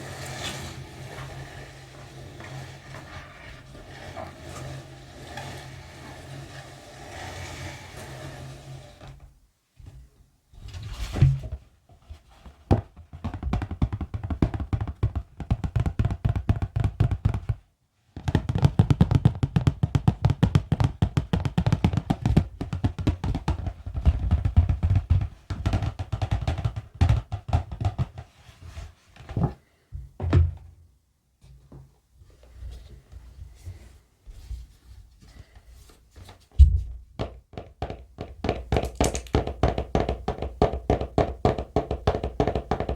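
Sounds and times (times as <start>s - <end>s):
rapid tapping on objects: 12.7s - 28.4s, 37.2s - 42.9s.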